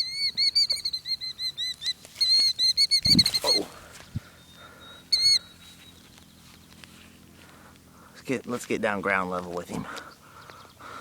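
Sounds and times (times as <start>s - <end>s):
bird shrill trilling alarm calls: 0.0s - 3.8s, 4.4s - 6.0s.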